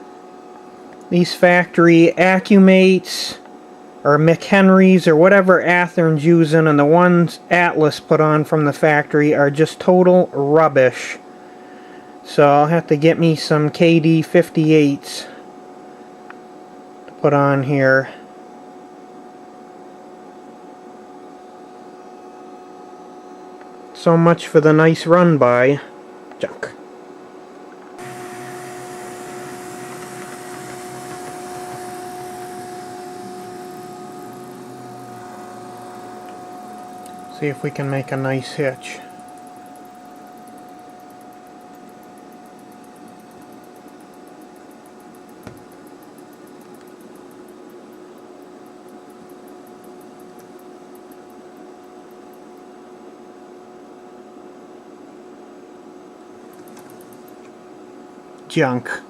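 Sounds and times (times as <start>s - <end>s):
electric motor whine: 28.0s - 47.7s
light rapid clicking: 28.0s - 52.6s, 56.5s - 57.6s
model railroad electric hum: 28.0s - 52.8s.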